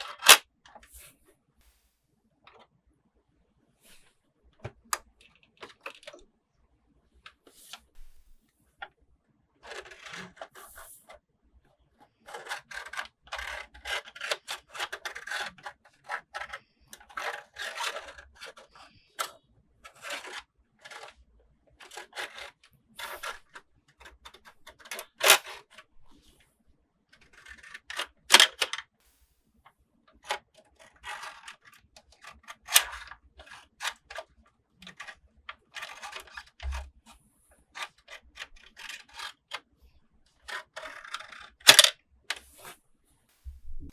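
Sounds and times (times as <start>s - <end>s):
sharp plastic snaps: 0.0s - 0.4s, 28.0s - 28.8s, 41.6s - 41.9s
small plastic clicks: 0.0s - 0.8s, 23.1s - 25.6s, 27.2s - 28.9s, 30.1s - 36.9s, 40.5s - 42.4s
plastic toy parts rustling and scraping: 0.0s - 1.2s, 2.5s - 2.7s, 3.9s - 6.2s, 7.2s - 8.9s, 9.6s - 11.2s, 12.0s - 21.2s, 21.8s - 26.4s, 27.1s - 29.0s, 30.1s - 39.7s, 40.4s - 42.8s.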